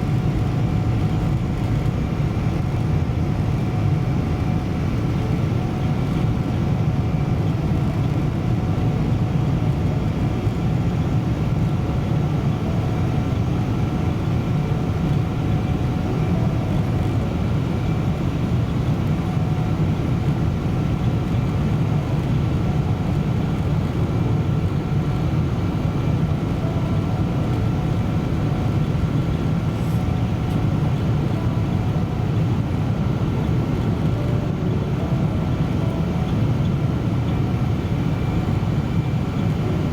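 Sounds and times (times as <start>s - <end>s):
airliner cabin drone: 0.0s - 39.9s.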